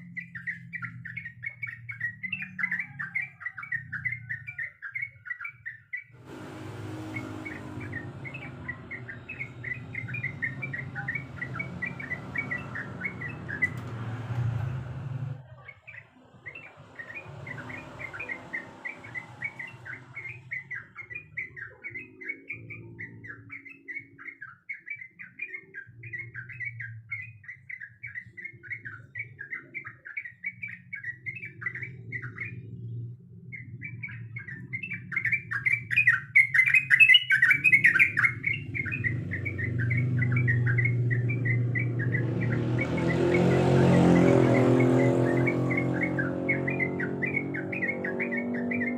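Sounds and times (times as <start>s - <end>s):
bulbul chattering song: 0.0s - 48.9s.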